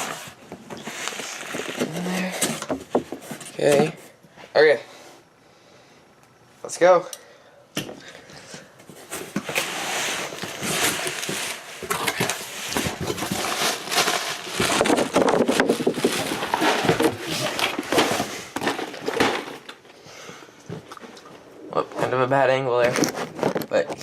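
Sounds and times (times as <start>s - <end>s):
packing rustling and crinkling: 0.0s - 4.0s, 8.9s - 19.9s, 22.0s - 24.0s
cardboard package tearing: 9.5s - 19.5s.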